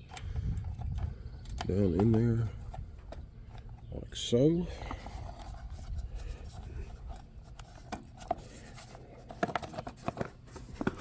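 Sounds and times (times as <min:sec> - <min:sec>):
wind rumble on microphone: 0:00.0 - 0:07.5.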